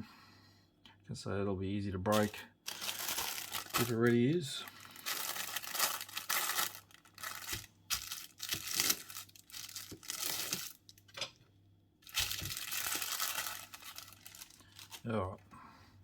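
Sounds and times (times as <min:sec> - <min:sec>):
plastic bag crinkling and rustling: 0:02.1 - 0:11.2, 0:12.0 - 0:15.4.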